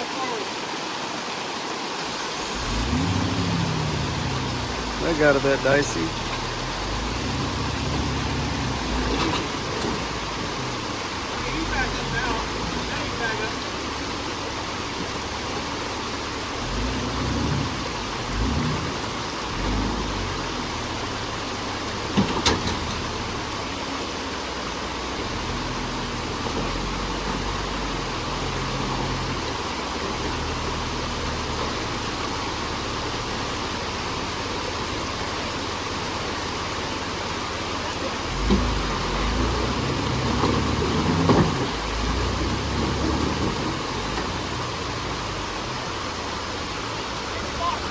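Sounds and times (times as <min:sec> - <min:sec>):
steady hiss: 0:00.0 - 0:47.9
engine throttle bursts: 0:02.4 - 0:13.6.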